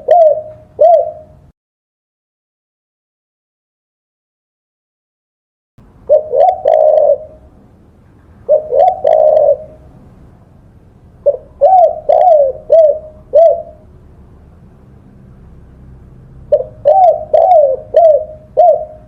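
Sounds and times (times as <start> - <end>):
dove cooing: 0.0 - 1.5, 6.1 - 7.5, 8.4 - 10.0, 11.2 - 13.9, 16.5 - 19.0.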